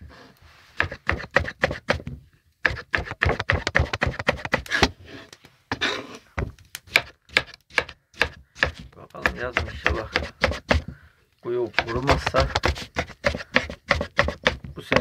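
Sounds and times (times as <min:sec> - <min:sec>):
knife chopping on cutting board: 0:00.8 - 0:02.0, 0:02.6 - 0:04.9, 0:06.9 - 0:10.8, 0:11.8 - 0:15.0.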